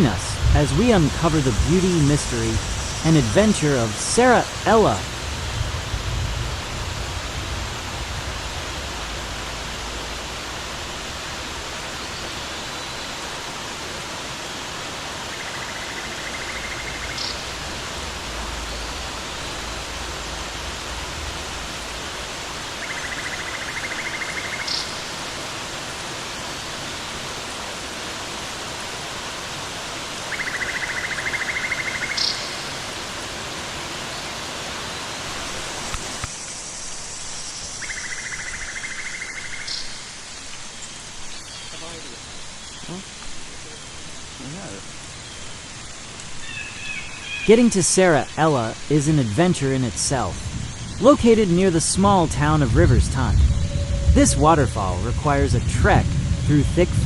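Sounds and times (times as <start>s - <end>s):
waterfall roaring: 0.0s - 57.0s
buzzy trill ending in chirp: 53.4s - 55.2s.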